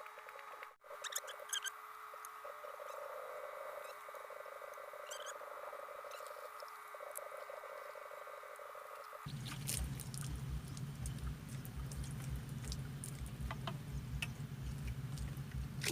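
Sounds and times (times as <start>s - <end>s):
chorus of calling animals: 0.9s - 13.3s.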